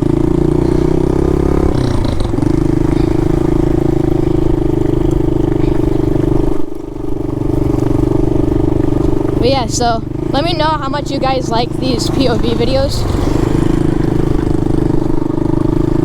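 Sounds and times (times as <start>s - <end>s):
pit bike engine running: 0.0s - 16.0s.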